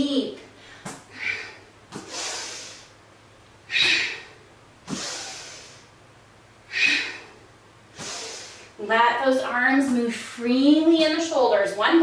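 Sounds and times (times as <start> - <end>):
woman breathing deeply: 0.5 - 3.0, 3.6 - 6.0, 6.6 - 8.8.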